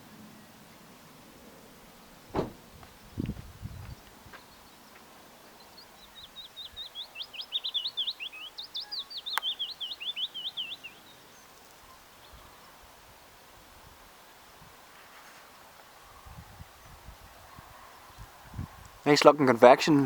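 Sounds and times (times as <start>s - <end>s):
songbird high chirps: 2.9s - 12.7s.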